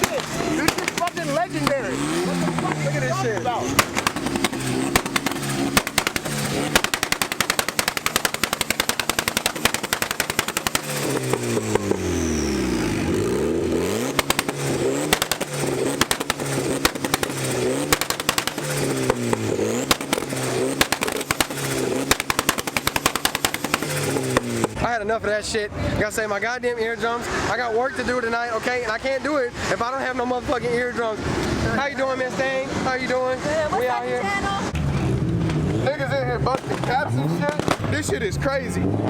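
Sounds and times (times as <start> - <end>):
car engine revving: 0.0 - 25.1, 29.5 - 39.0
exhaust pops crackling: 0.0 - 25.1, 34.3 - 39.0.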